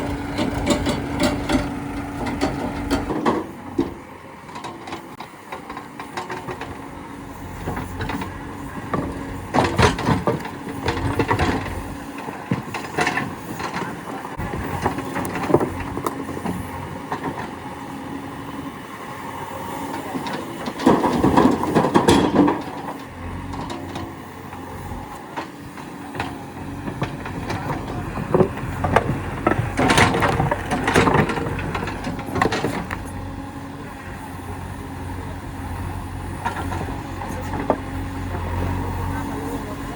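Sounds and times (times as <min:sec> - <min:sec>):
diesel engine running: 0:00.0 - 0:39.9
rocks knocking and clattering: 0:07.7 - 0:17.6, 0:25.4 - 0:33.2.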